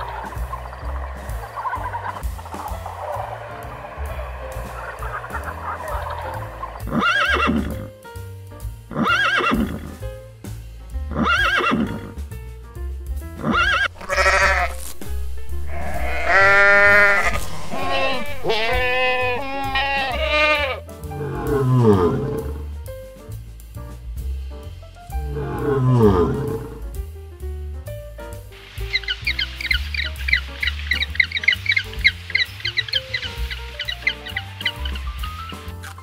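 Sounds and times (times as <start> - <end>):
background music with steady beat: 0.0 - 36.0
goat bleating: 13.5 - 14.9, 15.7 - 20.8
lion growling: 25.3 - 26.8.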